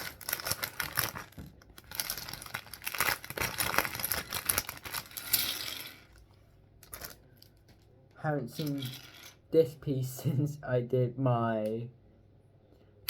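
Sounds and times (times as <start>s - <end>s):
plastic bag crinkling: 0.0s - 6.2s, 6.8s - 7.5s, 8.5s - 9.4s.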